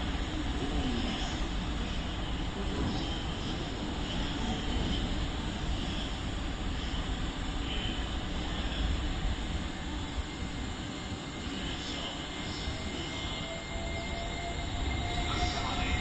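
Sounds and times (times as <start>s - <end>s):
train rumbling past: 0.0s - 16.0s.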